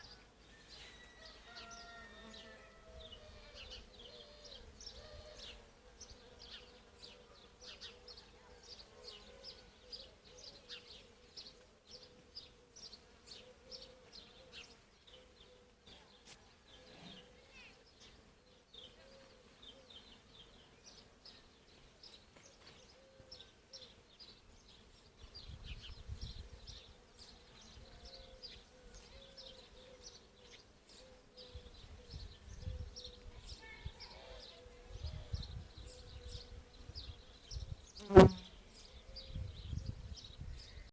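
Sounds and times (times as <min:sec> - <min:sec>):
wind rumble on microphone: 0:25.4 - 0:26.8, 0:31.6 - 0:34.0, 0:34.9 - 0:37.9, 0:39.1 - 0:40.9.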